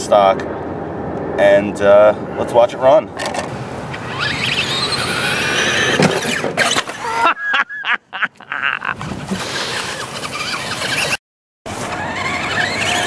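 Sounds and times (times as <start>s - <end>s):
electric motor whining: 3.9s - 6.9s, 9.2s - 13.0s.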